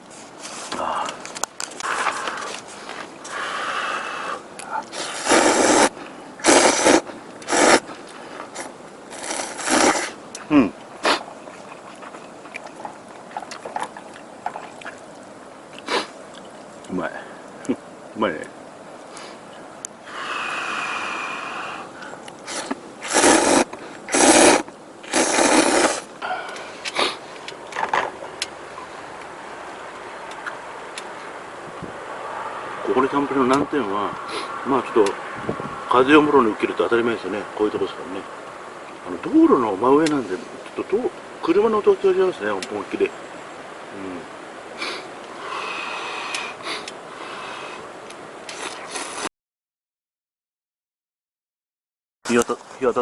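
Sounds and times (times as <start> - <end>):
steady hiss: 0.0 - 49.3, 52.3 - 53.0
noodles being slurped: 4.8 - 10.2, 22.5 - 26.1, 48.5 - 49.3.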